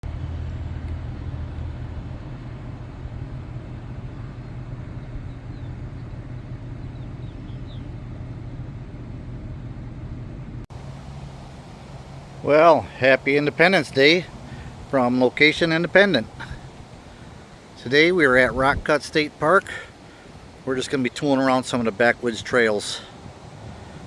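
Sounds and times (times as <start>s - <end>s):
vehicle engine idling: 0.0s - 24.0s
faint bird chirps: 4.0s - 8.1s.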